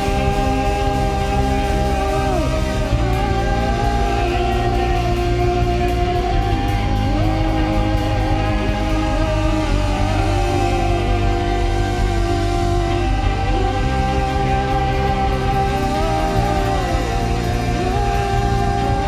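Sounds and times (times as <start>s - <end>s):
live worship band playing: 0.0s - 19.0s.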